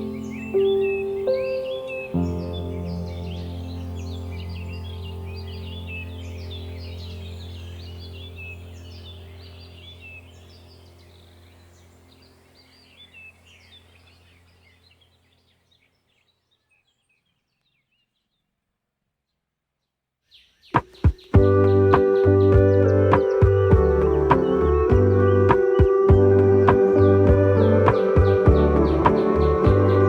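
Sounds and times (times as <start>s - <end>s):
sparrows chirping: 0.0s - 18.4s, 20.2s - 30.0s
music with sharp strikes: 20.8s - 30.0s.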